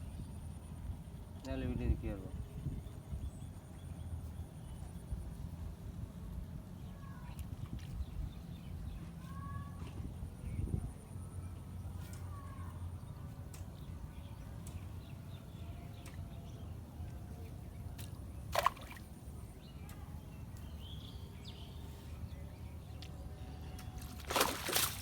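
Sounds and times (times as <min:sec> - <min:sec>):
water sloshing and dripping: 0:17.9 - 0:20.1, 0:23.8 - 0:25.0.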